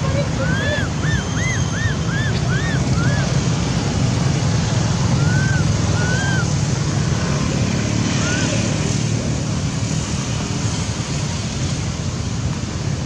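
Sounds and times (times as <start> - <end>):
baby monkey crying: 0.3 - 3.4, 5.2 - 6.5.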